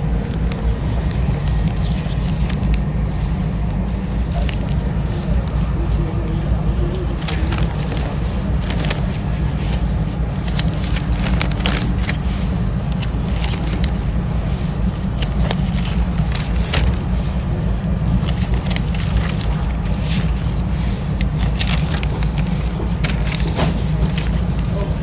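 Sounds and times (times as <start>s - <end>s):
vehicle rumble: 0.0s - 25.0s
crackles and clicks: 7.0s - 17.2s.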